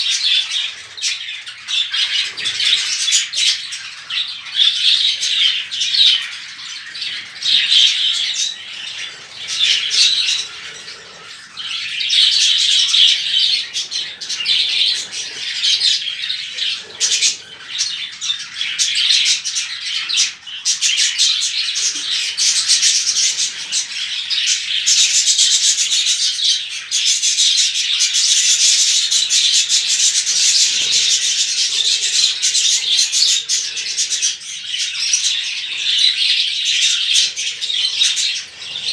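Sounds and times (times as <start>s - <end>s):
budgerigars chattering and warbling: 0.0s - 38.9s.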